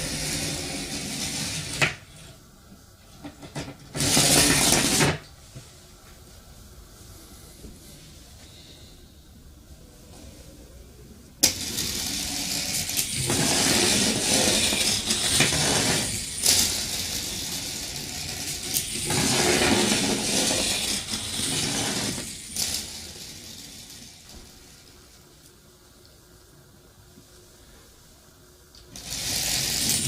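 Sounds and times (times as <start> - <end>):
battery rattling along wire coil: 11.4 - 24.3, 28.9 - 30.0.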